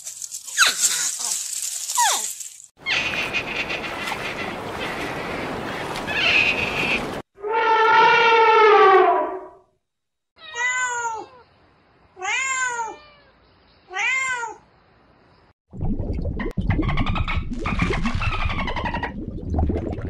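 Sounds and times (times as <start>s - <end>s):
cat meowing: 10.4s - 11.5s, 12.2s - 14.6s.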